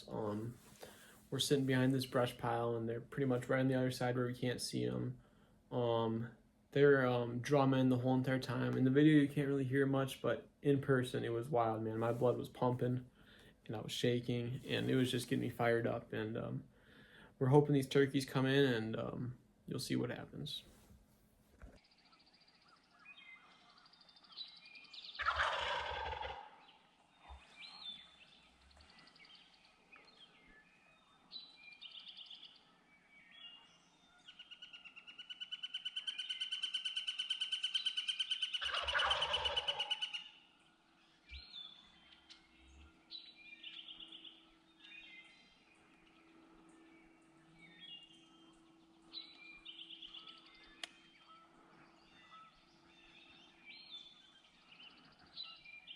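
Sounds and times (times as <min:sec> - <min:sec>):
bird chirps: 0:21.8 - 0:55.9
turkey gobbling: 0:25.2 - 0:27.5, 0:34.4 - 0:40.4.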